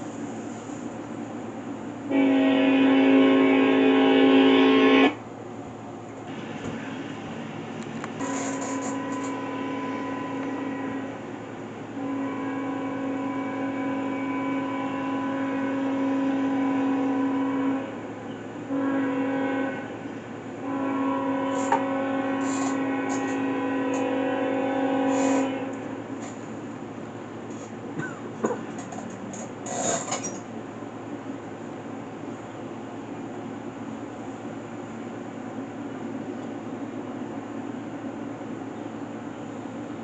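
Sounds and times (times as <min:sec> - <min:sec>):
locomotive air horn blasts: 0:02.1 - 0:05.2, 0:08.2 - 0:26.1.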